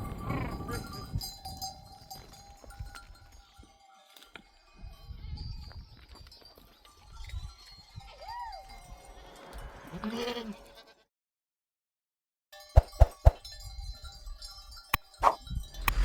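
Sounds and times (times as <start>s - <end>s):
sheep bleating: 9.2s - 11.1s.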